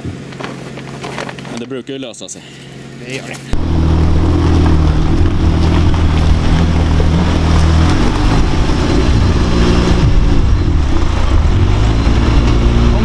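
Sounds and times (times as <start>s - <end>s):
off-road vehicle engine running: 3.5s - 13.0s.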